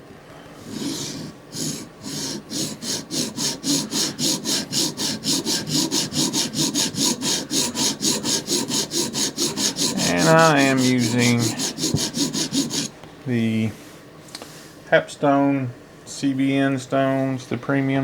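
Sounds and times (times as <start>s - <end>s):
sharpening stone rasping on blade: 0.6s - 12.9s.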